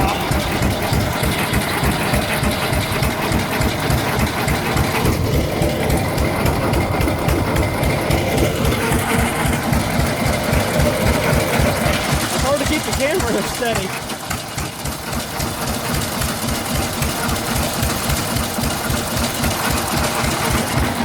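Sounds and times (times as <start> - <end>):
single-cylinder engine running: 0.0 - 21.0.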